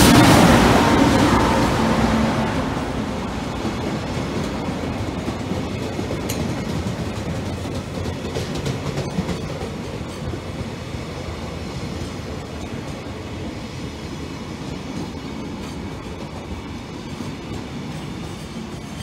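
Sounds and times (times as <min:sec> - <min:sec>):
train wheels rolling on rails: 0:00.0 - 0:19.0.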